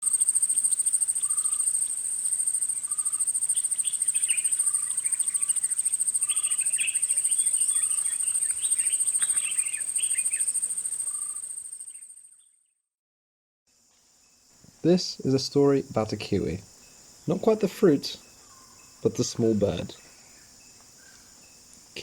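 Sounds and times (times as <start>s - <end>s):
insects trilling: 0.0s - 12.4s, 13.7s - 22.0s
birds chirping: 2.8s - 11.5s, 14.8s - 22.0s.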